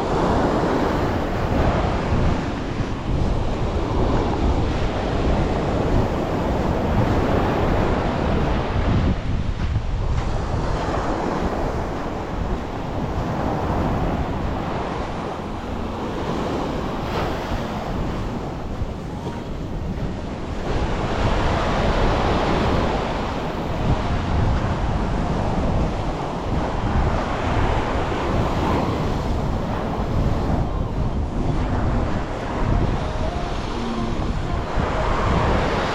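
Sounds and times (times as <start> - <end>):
surf washing onto beach: 0.0 - 35.9
wind buffeting microphone: 0.0 - 35.9.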